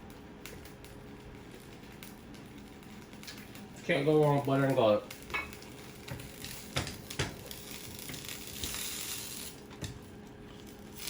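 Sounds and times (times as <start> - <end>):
food sizzling in butter: 5.1 - 9.6.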